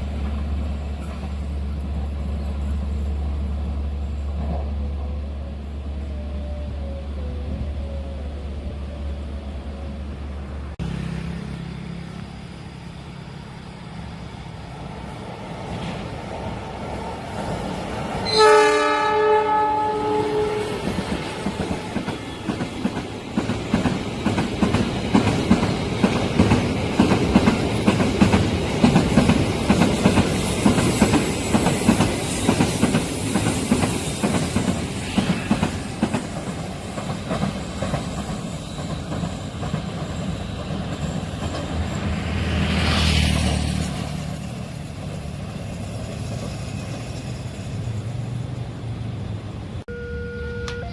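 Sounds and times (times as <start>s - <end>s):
train horn blast: 18.2s - 22.1s, 49.9s - 50.9s
train wheels clattering over rails: 19.8s - 47.7s.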